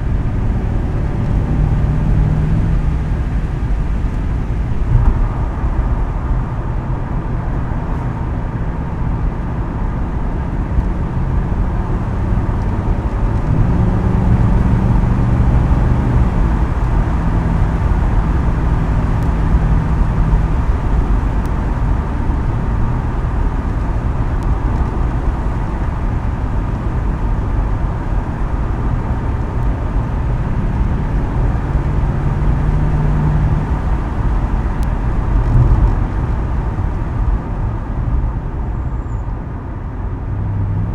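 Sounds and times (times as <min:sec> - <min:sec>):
car engine driving: 0:00.0 - 0:40.9.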